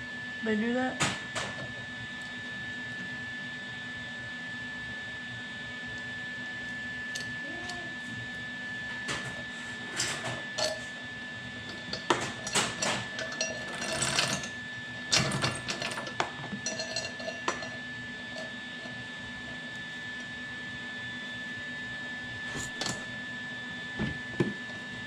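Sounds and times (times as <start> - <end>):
metal parts and tools clattering: 9.2 - 10.9, 11.7 - 17.8.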